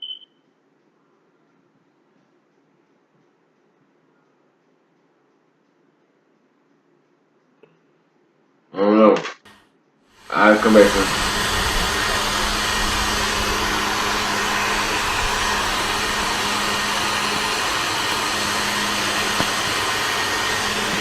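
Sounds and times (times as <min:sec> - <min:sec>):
heavy rain hissing: 0:10.2 - 0:21.0.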